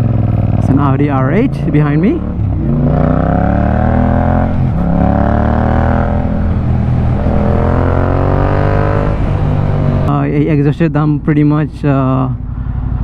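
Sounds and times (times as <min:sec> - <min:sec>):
motorcycle engine accelerating: 0:00.0 - 0:10.2.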